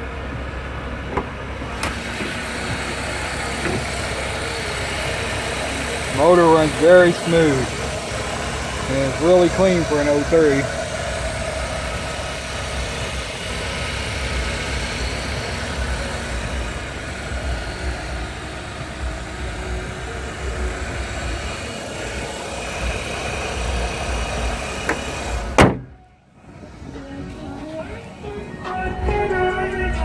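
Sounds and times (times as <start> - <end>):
car engine idling: 0.0 - 30.0
sharp knock: 24.9 - 25.9.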